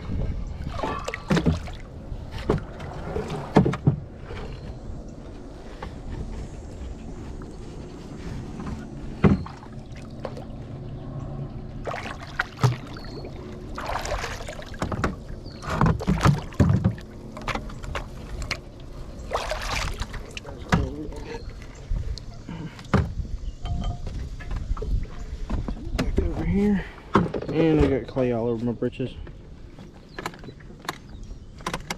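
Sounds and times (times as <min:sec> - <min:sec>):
rustling or scraping: 0:02.2 - 0:10.8
hard knocks on boat: 0:13.8 - 0:17.6, 0:20.6 - 0:21.1.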